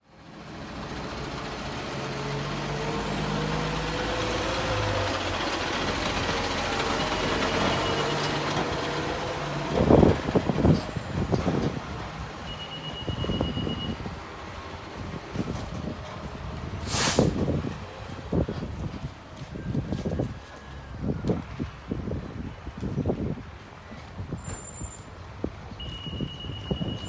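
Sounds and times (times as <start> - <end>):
fire engine diesel engine revving: 0.2 - 18.5.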